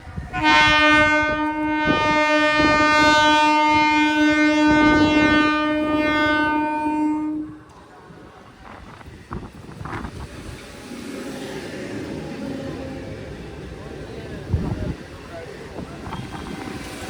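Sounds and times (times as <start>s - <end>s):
train rumbling and clattering: 0.0s - 17.0s
train horn: 0.2s - 7.8s.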